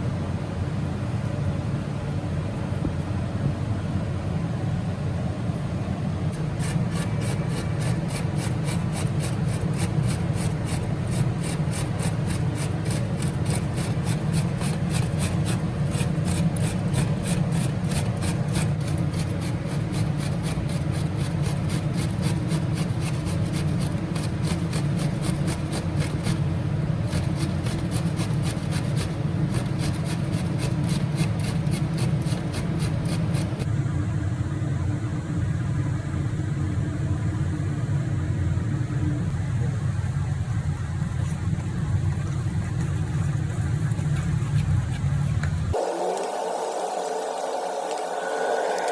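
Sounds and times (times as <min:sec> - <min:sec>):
steady low hum: 0:00.0 - 0:48.9
rhythmic scraping in food preparation: 0:06.3 - 0:33.7, 0:41.1 - 0:48.9.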